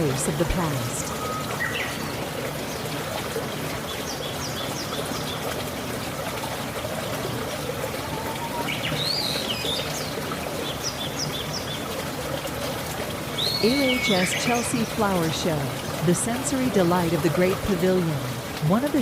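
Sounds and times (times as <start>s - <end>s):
water trickling: 0.0s - 19.0s
small birds chirping: 8.4s - 11.9s, 13.3s - 15.9s.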